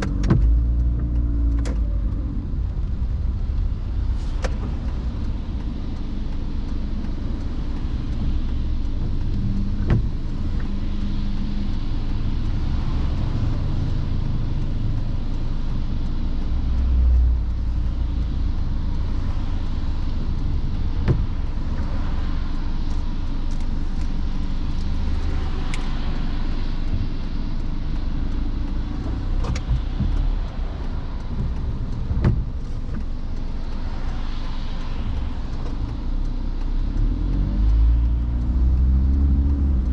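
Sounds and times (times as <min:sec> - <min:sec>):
car engine and tyres rumbling: 0:00.0 - 0:39.9
tyre spray hiss: 0:03.8 - 0:38.8.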